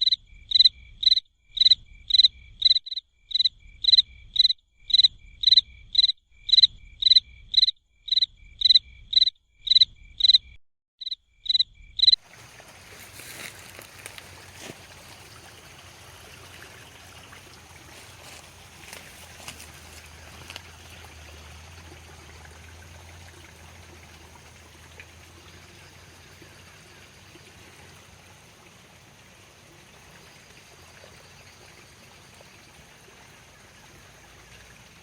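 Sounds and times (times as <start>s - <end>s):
running water hiss: 12.2s - 35.0s.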